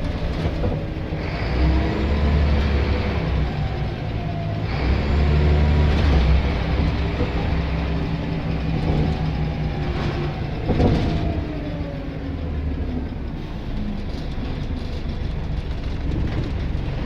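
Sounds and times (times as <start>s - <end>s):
knocks and rattles: 0.0s - 1.1s, 5.8s - 11.7s, 14.0s - 17.0s
bus diesel engine running: 0.0s - 17.0s.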